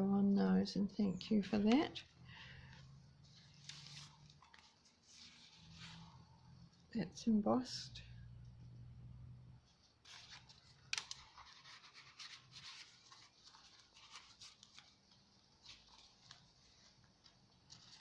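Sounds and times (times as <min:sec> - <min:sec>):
paper pages rustling and ticking: 0:02.7 - 0:06.9, 0:09.7 - 0:18.0.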